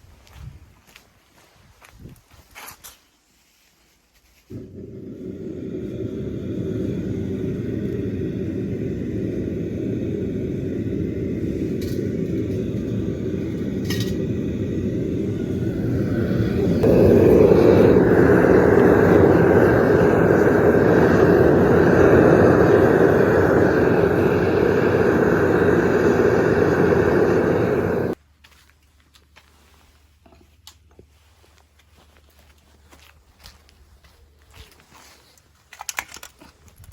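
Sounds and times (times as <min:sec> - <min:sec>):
gas burner roaring: 0:04.5 - 0:28.2.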